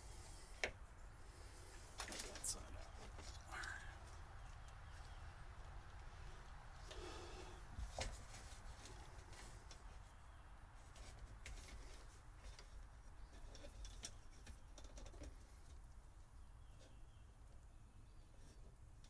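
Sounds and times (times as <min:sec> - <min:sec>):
light clicks and rattles: 0:10.9 - 0:15.8.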